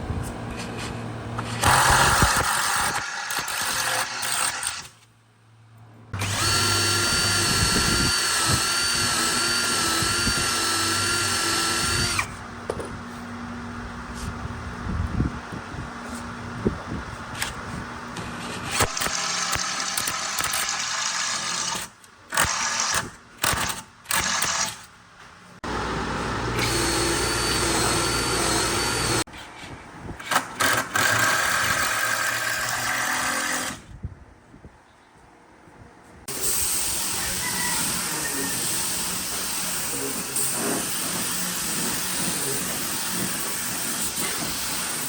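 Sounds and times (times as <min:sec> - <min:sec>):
power tools running: 0:01.6 - 0:04.9, 0:06.2 - 0:12.4, 0:18.7 - 0:24.9, 0:25.6 - 0:29.3.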